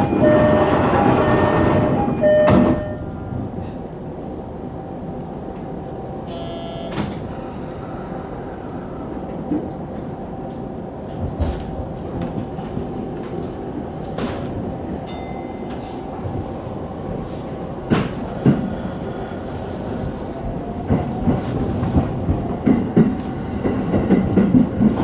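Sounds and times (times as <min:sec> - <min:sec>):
electric train rumble: 0:00.0 - 0:25.0
electric train whine: 0:00.0 - 0:25.0
short beeps: 0:00.1 - 0:03.2, 0:06.3 - 0:07.1.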